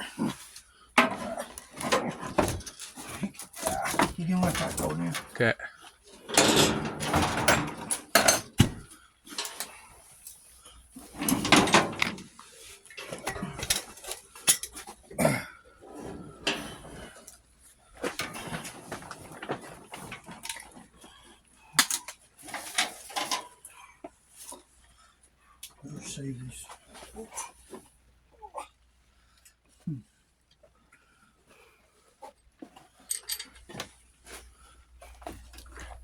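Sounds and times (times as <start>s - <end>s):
metal tools clinking and clattering: 1.0s - 5.4s, 6.1s - 9.9s, 11.0s - 15.0s, 16.0s - 17.3s, 21.8s - 23.6s, 33.0s - 33.8s.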